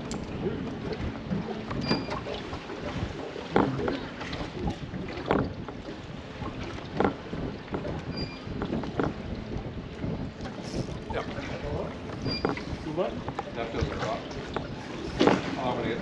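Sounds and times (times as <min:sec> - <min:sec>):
wind noise on microphone: 0:00.0 - 0:15.5
water around boat: 0:00.0 - 0:16.0.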